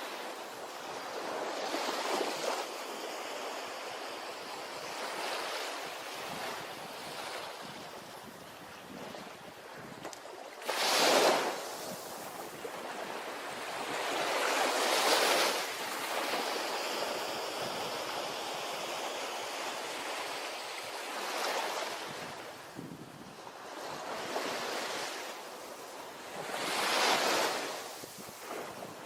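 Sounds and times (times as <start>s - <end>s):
ocean waves crashing on beach: 0.0s - 29.0s
hiss of surf: 10.6s - 12.7s, 24.0s - 29.0s.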